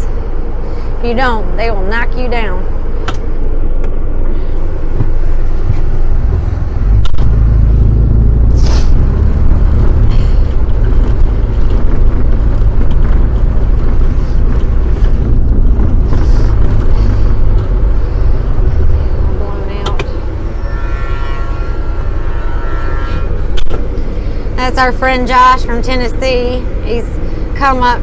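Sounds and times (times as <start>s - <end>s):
vehicle engine rumbling: 0.0s - 28.0s
brief hiss: 8.6s - 9.0s.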